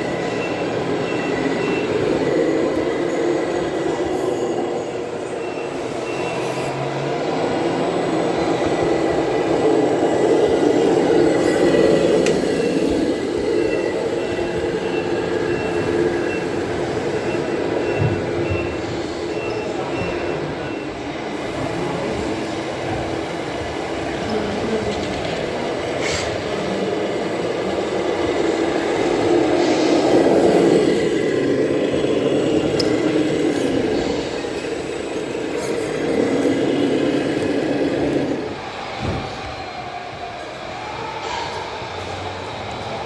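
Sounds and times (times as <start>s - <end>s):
toy truck motors whining: 8.0s - 18.5s, 21.3s - 38.7s.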